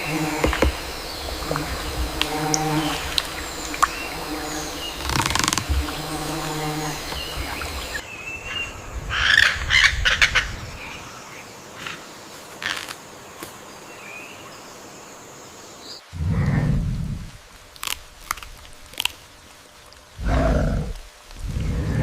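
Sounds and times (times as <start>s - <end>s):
birds calling and chirping: 0.0s - 12.9s.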